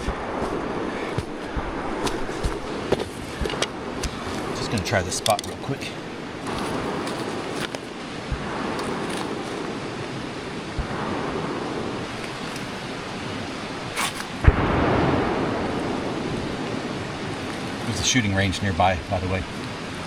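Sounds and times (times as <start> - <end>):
creek rushing: 0.0 - 20.0
gunshot: 13.9 - 15.9.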